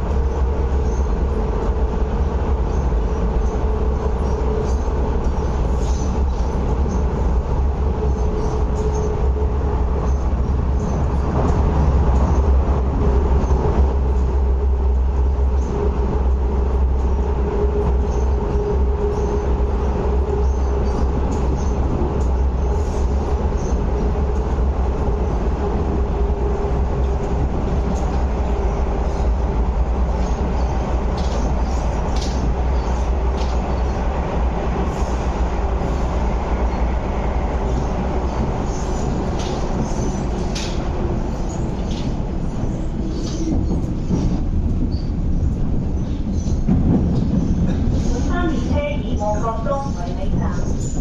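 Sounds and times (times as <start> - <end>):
train wheels rumbling on track: 0.0 - 51.0
running gear clicks and clacks: 38.6 - 40.8.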